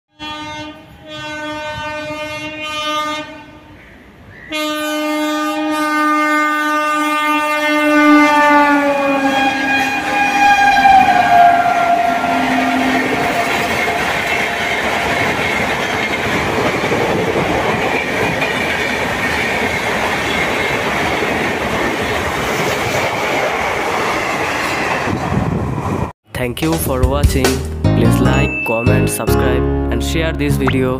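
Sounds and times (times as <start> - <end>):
train horn blasts: 0.1 - 3.8, 4.4 - 14.0
train wheels running over rails: 13.0 - 26.1.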